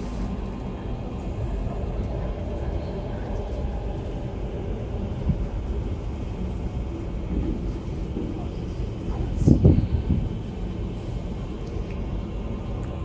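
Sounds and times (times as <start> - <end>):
train car rumble: 0.0 - 13.0.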